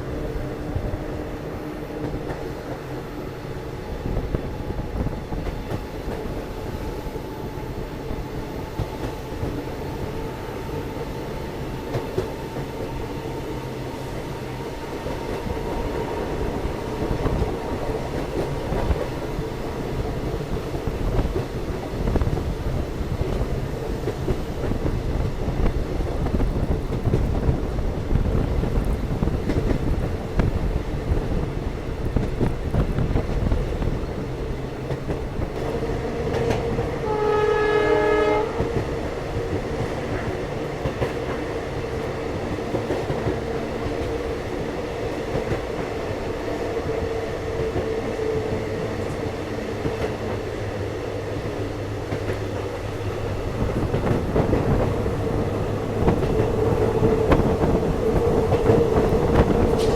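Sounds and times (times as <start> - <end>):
steady train whine: 0.0 - 59.9
train wheels clattering: 28.2 - 46.0, 51.3 - 59.9
locomotive horn: 36.4 - 38.9.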